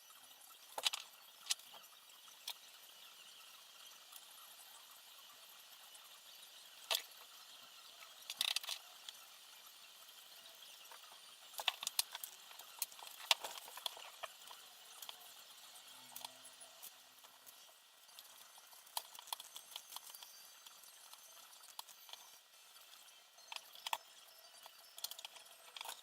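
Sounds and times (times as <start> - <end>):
small clicks and taps of parts: 0.7 - 1.8, 6.9 - 7.3, 8.0 - 9.2, 10.9 - 15.3, 23.5 - 24.1, 24.7 - 26.0.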